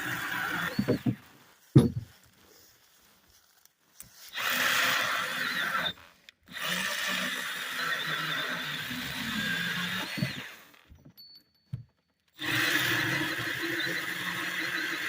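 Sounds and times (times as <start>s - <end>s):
mini chainsaw cutting log: 0.0s - 1.9s, 4.2s - 11.0s, 12.4s - 15.0s.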